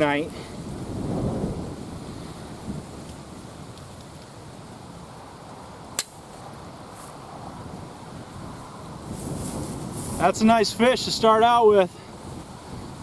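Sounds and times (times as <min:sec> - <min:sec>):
wind buffeting microphone: 0:00.0 - 0:13.0
sharp click: 0:06.0 - 0:06.2.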